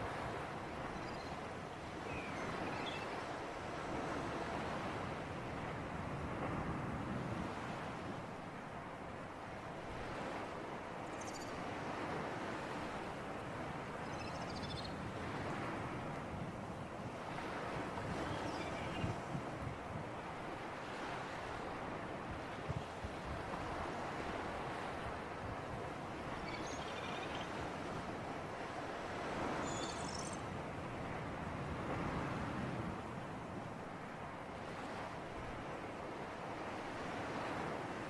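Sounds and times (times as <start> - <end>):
waves washing on shore: 0.0 - 11.0, 15.0 - 26.5, 30.4 - 38.0
sea breeze: 0.0 - 38.0.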